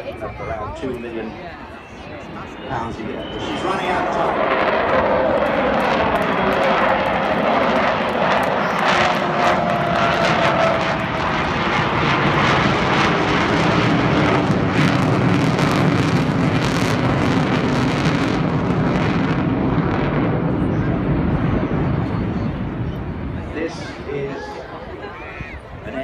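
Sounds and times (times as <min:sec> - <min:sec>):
low jet tone: 0:00.0 - 0:26.0
jet noise with crackle: 0:00.8 - 0:24.0
whistling tone sliding down: 0:01.7 - 0:04.0.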